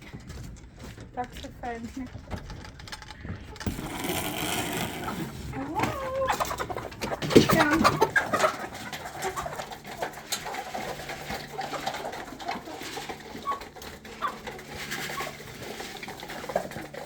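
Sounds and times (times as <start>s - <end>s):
poultry cooing and chirping: 3.7s - 17.0s.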